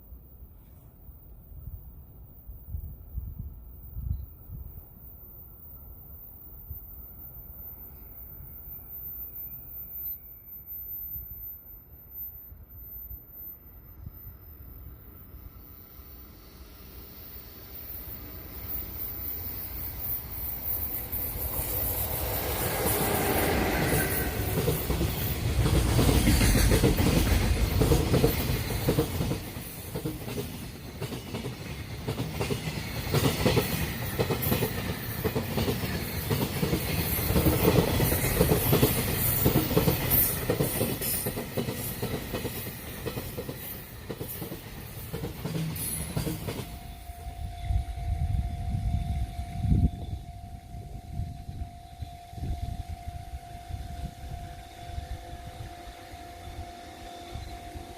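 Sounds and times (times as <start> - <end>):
locomotive passing: 16.4 - 57.9
train wheels clickety-clack: 20.1 - 47.0.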